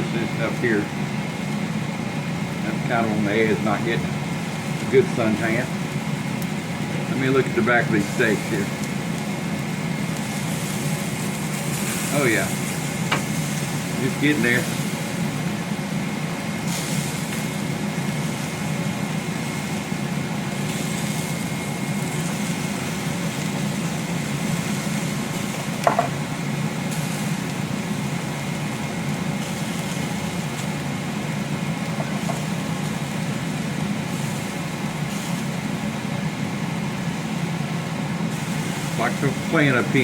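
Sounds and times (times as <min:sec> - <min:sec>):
low machine hum: 0:00.0 - 0:40.0.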